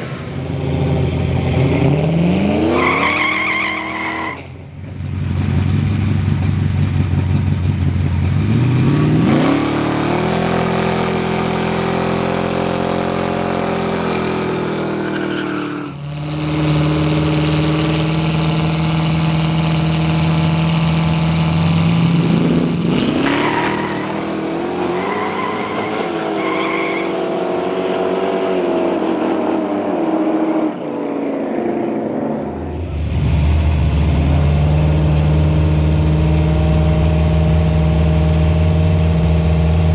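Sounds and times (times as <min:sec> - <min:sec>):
race car engines revving hard: 0:00.0 - 0:39.9.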